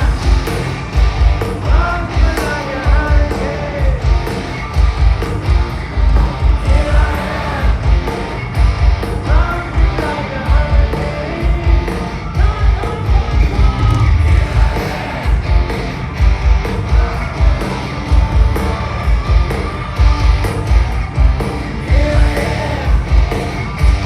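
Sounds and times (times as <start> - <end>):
hard rock band playing: 0.0 - 24.0
male or female lead vocal: 1.6 - 4.1, 6.6 - 8.3, 9.2 - 15.7, 16.8 - 17.8, 21.8 - 23.2.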